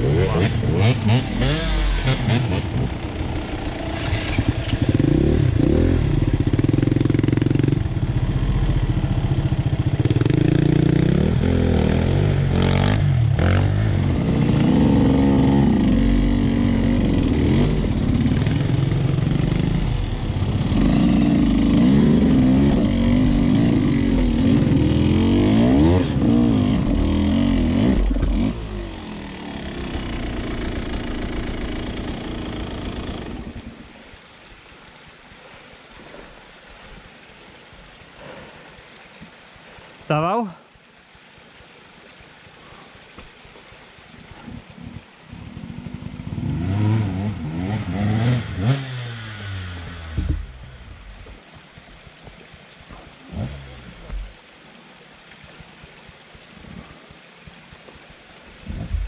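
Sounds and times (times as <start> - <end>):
motorcycle engine revving: 0.0 - 33.8, 45.4 - 51.2.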